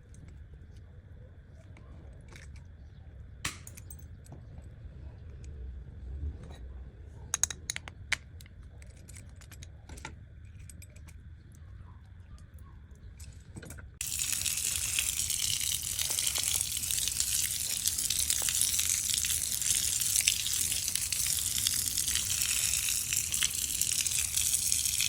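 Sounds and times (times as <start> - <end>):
faucet water running: 14.0 - 25.0.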